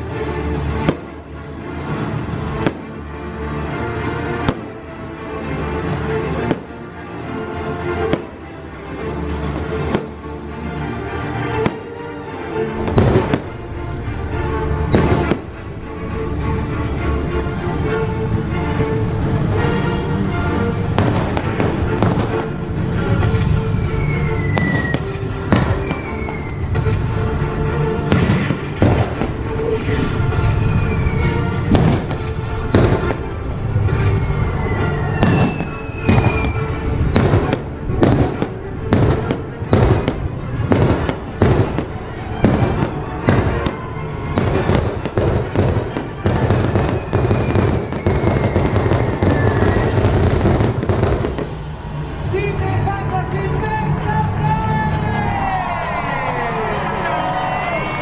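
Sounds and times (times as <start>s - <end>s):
music playing: 0.0s - 58.0s
fireworks bursting with bangs: 0.6s - 3.0s, 4.4s - 4.8s, 5.8s - 6.8s, 8.0s - 8.5s, 9.3s - 10.2s, 11.6s - 11.9s, 12.8s - 15.7s, 20.8s - 51.7s.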